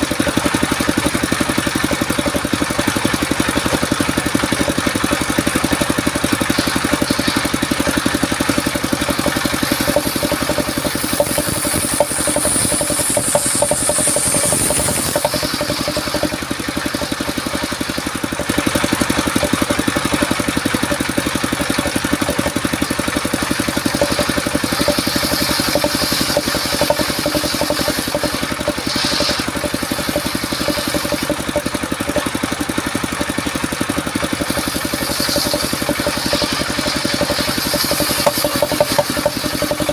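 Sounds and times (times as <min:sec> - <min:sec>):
sawmill engine running: 0:00.0 - 0:39.9
high hiss: 0:09.5 - 0:16.4.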